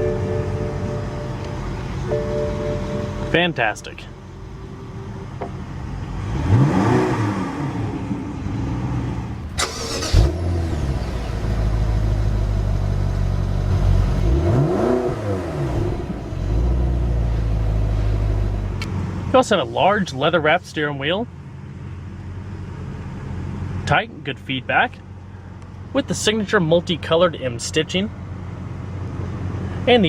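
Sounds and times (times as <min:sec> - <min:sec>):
car engine revving: 0:06.0 - 0:17.8.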